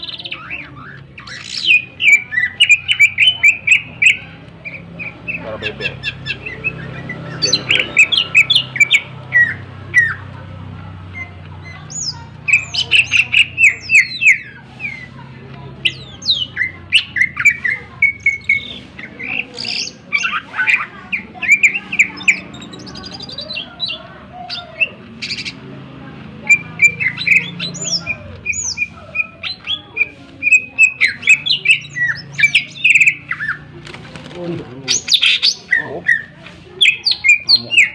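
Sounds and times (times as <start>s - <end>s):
bird singing rapid whistles: 26.4s - 33.7s.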